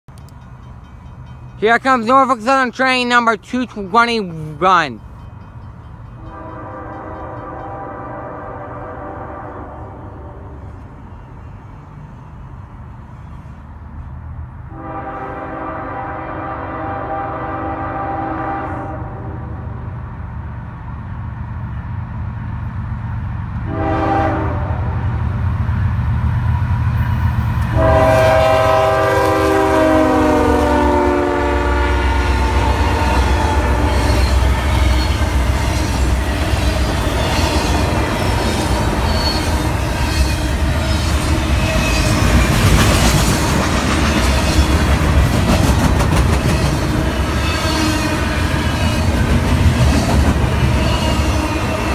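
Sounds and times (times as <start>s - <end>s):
diesel engines rumbling: 0.1s - 6.0s
locomotive air horn: 6.2s - 10.7s, 14.7s - 19.8s, 23.6s - 25.1s, 27.7s - 42.3s.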